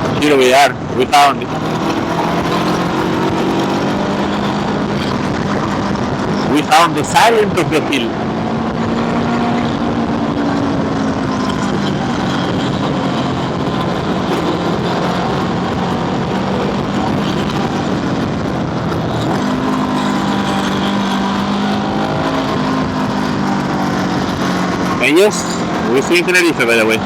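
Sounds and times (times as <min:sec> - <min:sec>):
scooter engine cruising: 0:00.0 - 0:27.0
wind and road noise on microphone: 0:00.0 - 0:27.0.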